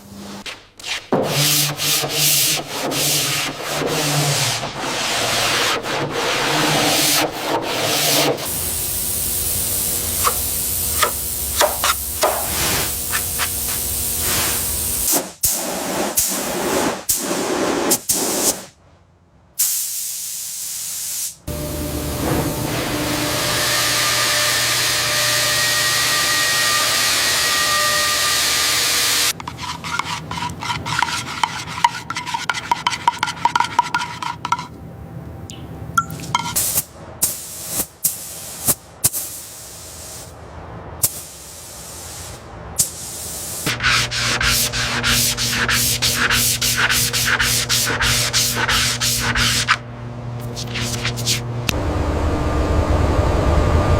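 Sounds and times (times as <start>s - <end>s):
rhythmic sanding strokes: 1.4s - 8.7s, 29.1s - 34.7s, 43.4s - 49.8s
steady hiss: 8.5s - 15.6s, 36.6s - 40.4s, 41.0s - 43.8s.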